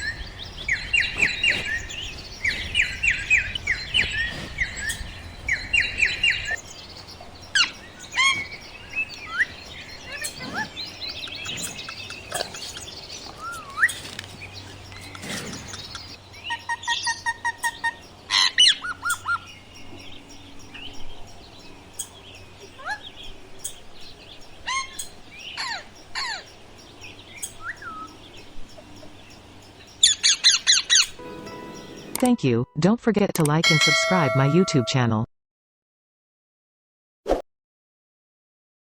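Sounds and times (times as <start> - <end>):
parakeet chirps and squawks: 7.6 - 8.6, 15.5 - 19.5, 24.7 - 26.4.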